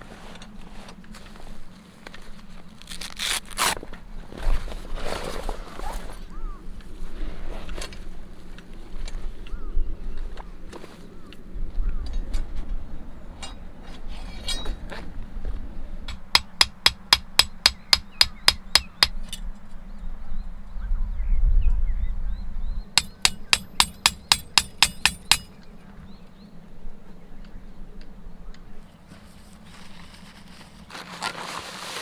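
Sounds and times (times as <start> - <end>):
hammer ringing on metal tent peg: 16.1 - 19.2, 23.0 - 25.6.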